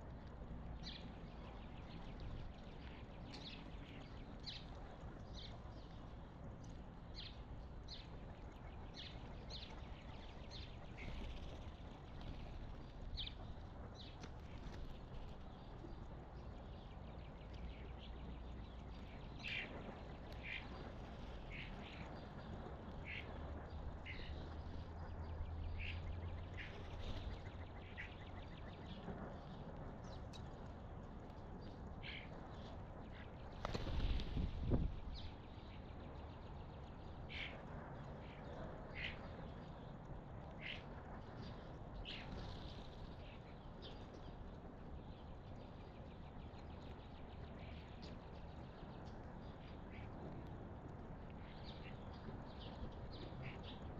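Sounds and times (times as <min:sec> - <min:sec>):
low outdoor rumble: 0:00.0 - 0:53.9.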